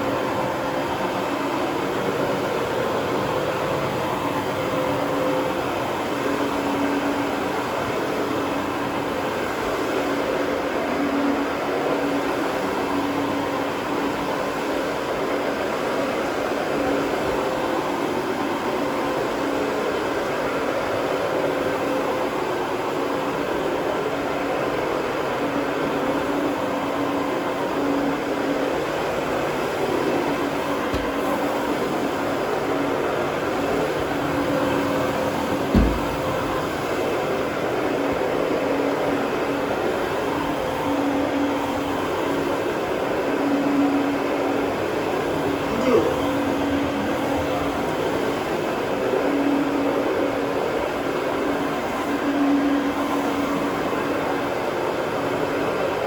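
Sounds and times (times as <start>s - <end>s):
carpet cleaning machine running: 29.1s - 51.2s.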